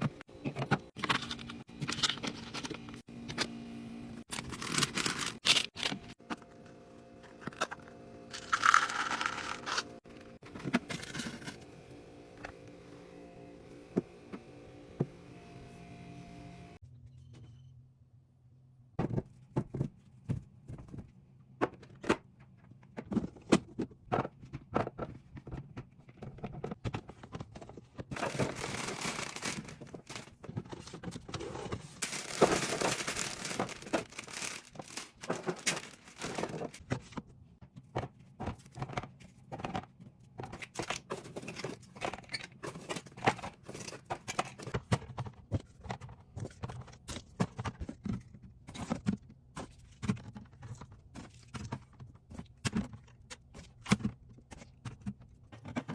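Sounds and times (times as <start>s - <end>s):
plastic packaging crinkling: 4.3s - 6.2s, 8.3s - 10.0s, 28.2s - 30.4s, 32.0s - 36.8s
containers clicking and knocking: 7.4s - 11.5s.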